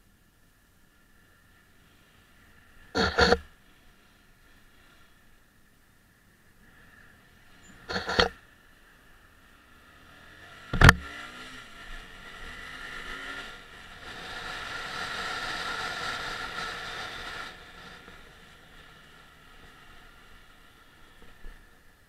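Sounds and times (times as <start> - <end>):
motorcycle engine accelerating: 2.8 - 3.5, 9.2 - 21.9
sharp knock: 10.8 - 11.0.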